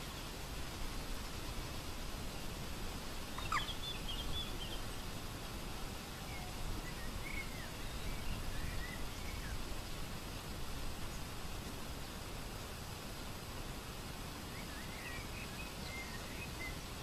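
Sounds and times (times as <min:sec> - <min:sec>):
outdoor background hiss: 0:00.0 - 0:17.0
birds calling: 0:03.4 - 0:05.0.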